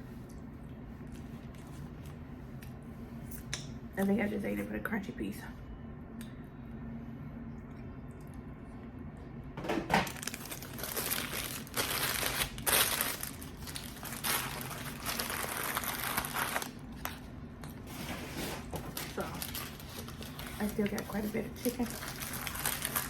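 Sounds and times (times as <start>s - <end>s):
food packaging crinkling: 10.0s - 23.0s.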